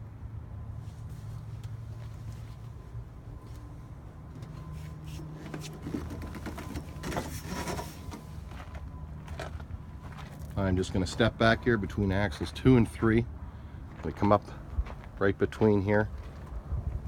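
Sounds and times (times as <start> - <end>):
footsteps on metal deck plate: 4.3 - 11.4, 13.9 - 15.2, 16.1 - 17.0.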